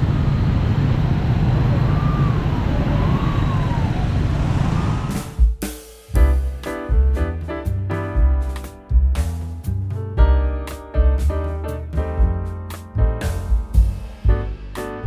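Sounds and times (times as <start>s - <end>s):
music with sharp drum hits: 5.1s - 15.0s.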